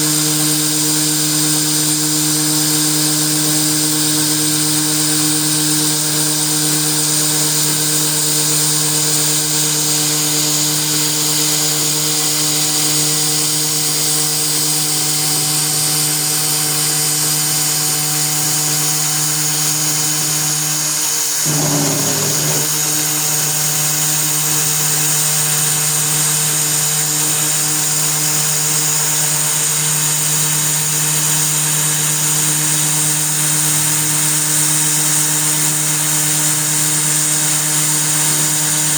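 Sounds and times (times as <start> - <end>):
router spindle whine: 15.4 - 23.4
hiss of cutting metal: 21.4 - 22.9.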